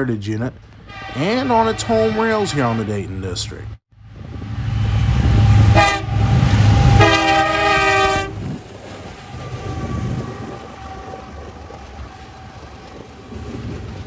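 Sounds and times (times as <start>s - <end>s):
diesel locomotive rumbling: 0.0s - 14.0s
freight cars rolling: 0.0s - 14.0s
train chime horn: 0.9s - 3.0s, 5.2s - 8.5s, 9.3s - 13.0s.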